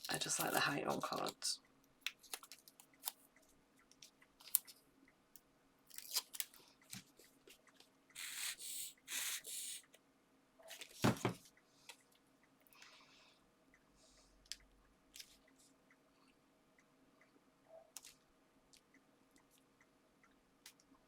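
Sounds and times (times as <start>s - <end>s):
paper ticking and crinkling: 0.0s - 4.8s
thump: 11.0s - 11.4s.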